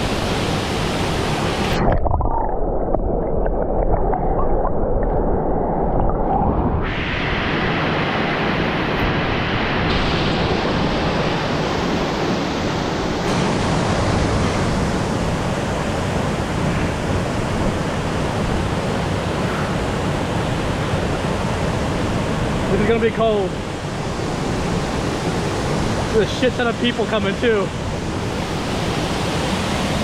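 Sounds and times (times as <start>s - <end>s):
waterfall rushing: 7.0s - 30.0s.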